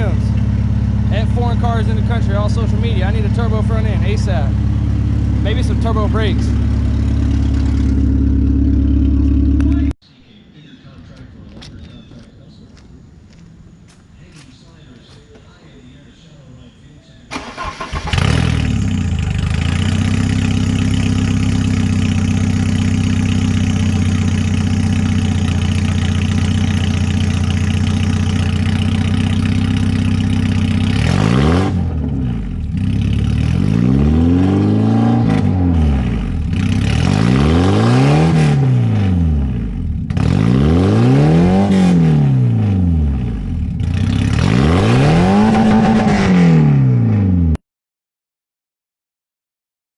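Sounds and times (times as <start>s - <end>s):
car engine revving: 0.0s - 10.0s, 17.3s - 47.6s
car engine starting and idling: 0.0s - 10.0s, 17.3s - 47.6s.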